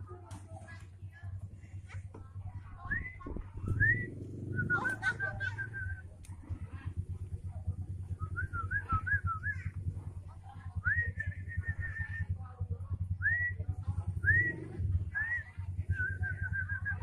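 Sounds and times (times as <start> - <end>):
steady low hum: 0.0 - 17.0
bird whistling: 2.8 - 6.0.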